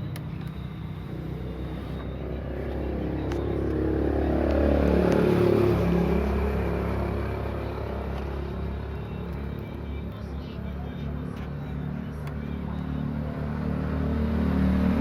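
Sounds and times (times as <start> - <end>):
motor vehicle engine passing by: 1.3 - 8.5, 13.0 - 15.0.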